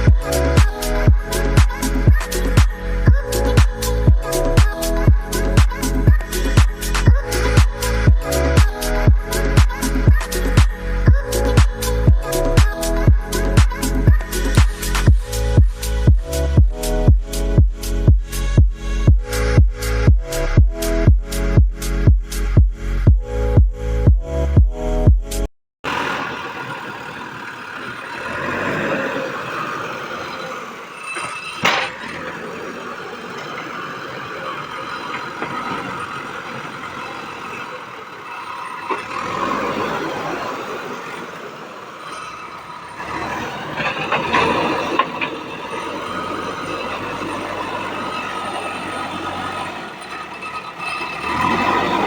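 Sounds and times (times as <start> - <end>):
backhoe engine under load: 0.0 - 19.0, 25.8 - 52.0
metallic squealing: 26.4 - 52.0.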